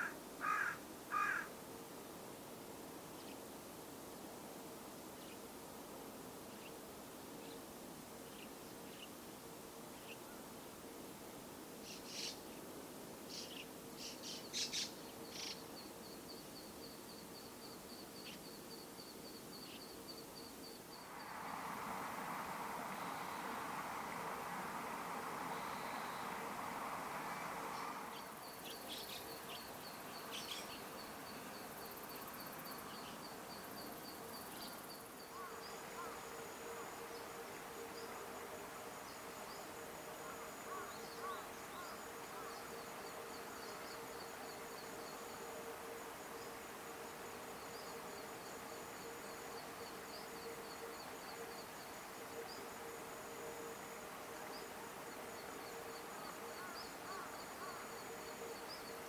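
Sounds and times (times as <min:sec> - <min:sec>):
faint thin whine: 0:13.3 - 0:59.0.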